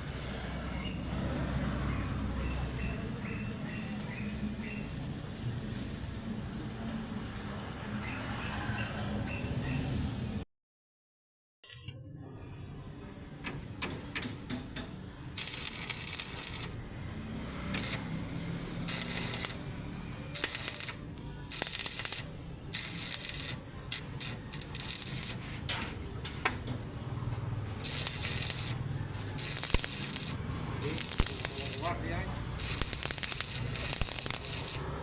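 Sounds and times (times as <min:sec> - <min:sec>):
sharp clicks: 0:13.5 - 0:16.8, 0:29.4 - 0:31.9, 0:32.6 - 0:34.8
welding arc crackling: 0:15.3 - 0:35.0.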